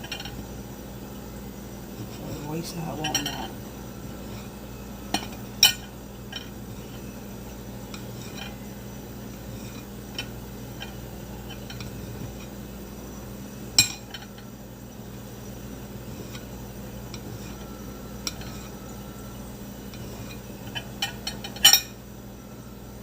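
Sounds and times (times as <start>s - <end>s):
dishes and utensils clinking: 0.0s - 0.4s, 1.9s - 7.1s, 7.9s - 8.7s, 9.4s - 12.6s, 13.8s - 14.5s, 16.1s - 18.9s, 19.9s - 22.0s
dishes clattering: 0.0s - 0.4s, 2.0s - 3.6s, 4.2s - 7.0s, 7.9s - 8.6s, 9.5s - 12.5s, 13.8s - 14.5s, 17.1s - 18.8s, 19.9s - 22.0s
steady low hum: 0.0s - 23.0s.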